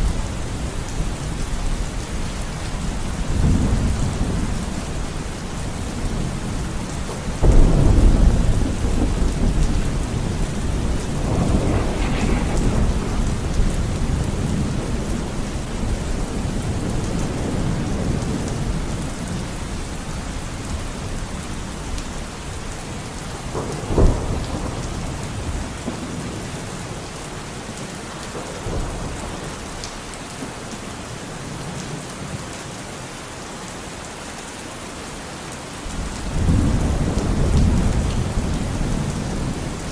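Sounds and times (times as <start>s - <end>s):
steady rain: 0.0s - 39.9s
rolling thunder: 2.7s - 21.2s, 22.9s - 27.0s, 35.9s - 39.9s
sharp thunder crack: 7.4s - 16.9s.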